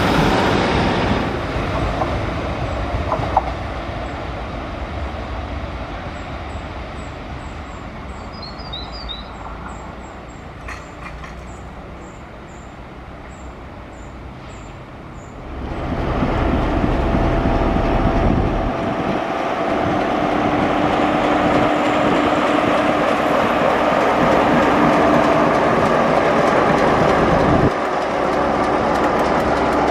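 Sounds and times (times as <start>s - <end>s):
diesel locomotive passing: 0.0s - 29.9s
diesel train rumble: 0.0s - 29.9s
small birds chirping: 6.2s - 15.4s.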